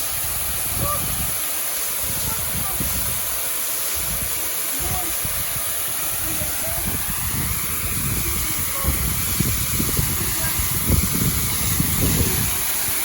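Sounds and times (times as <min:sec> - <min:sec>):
wind buffeting microphone: 0:00.0 - 0:01.4, 0:02.0 - 0:13.0
waterfall rushing: 0:00.0 - 0:13.0.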